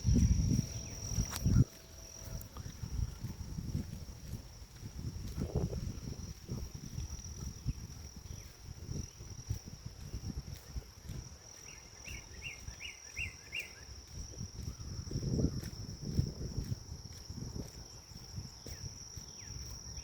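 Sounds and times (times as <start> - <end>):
footsteps on forest path: 0.0 - 20.0
high-pitched insect trill: 0.0 - 20.0
bird chirps: 11.6 - 13.9.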